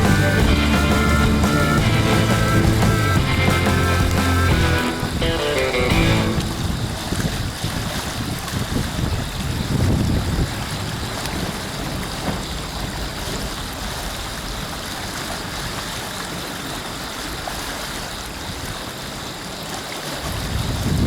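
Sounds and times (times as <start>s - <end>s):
lake waves splashing: 0.0s - 21.0s
wind buffeting microphone: 6.2s - 14.8s, 20.2s - 21.0s.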